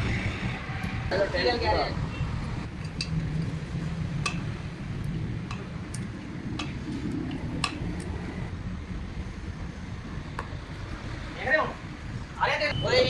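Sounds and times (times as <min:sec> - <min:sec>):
metal tools clicking and tapping: 0:02.7 - 0:03.6, 0:04.2 - 0:08.2.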